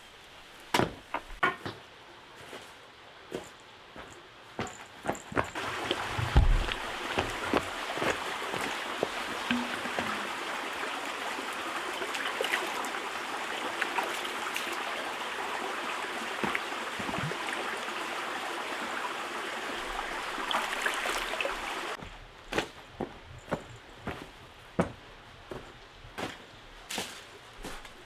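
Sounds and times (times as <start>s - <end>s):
steady rain: 5.6s - 22.0s.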